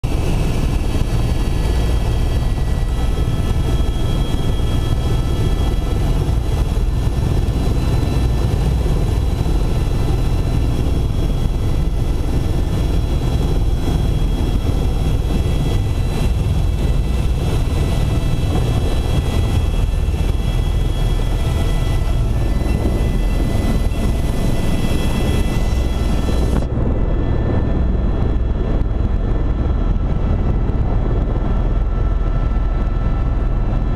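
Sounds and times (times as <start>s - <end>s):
helicopter rumble: 0.0s - 33.9s
high whining tones: 0.8s - 26.7s.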